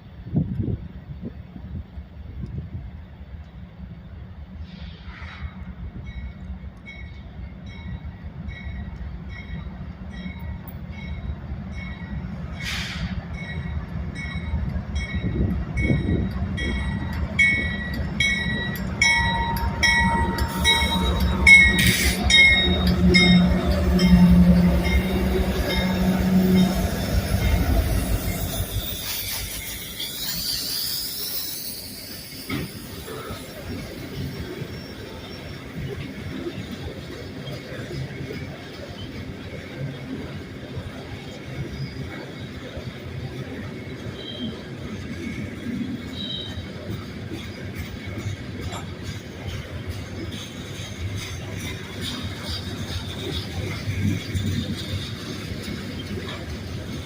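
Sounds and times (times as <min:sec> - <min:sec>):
diesel locomotives rumbling: 0:00.0 - 0:57.0
locomotive bell ringing: 0:06.0 - 0:37.8
wheel squeal: 0:27.4 - 0:36.6, 0:44.0 - 0:45.1, 0:46.0 - 0:48.9.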